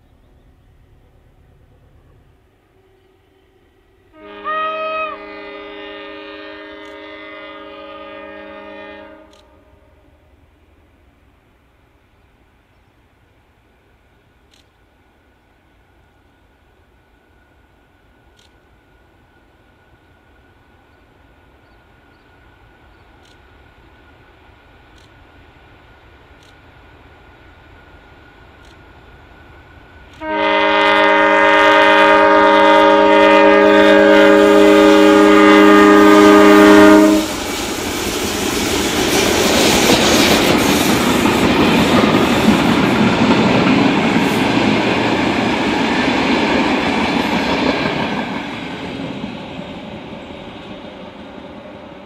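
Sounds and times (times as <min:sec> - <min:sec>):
train rumbling past on rails: 0:00.0 - 0:52.0
locomotive horn blast: 0:02.8 - 0:10.2, 0:30.1 - 0:37.6.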